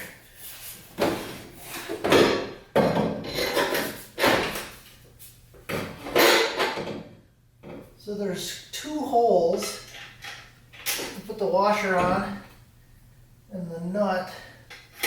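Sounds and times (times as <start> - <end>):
metal exhaust parts clattering: 1.2 - 4.8, 5.7 - 6.9.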